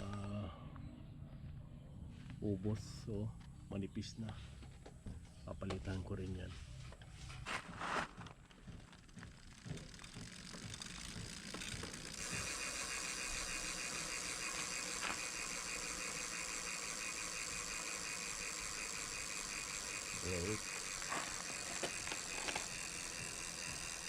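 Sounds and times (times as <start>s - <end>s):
bike freehub ratchet buzzing: 8.6s - 24.0s.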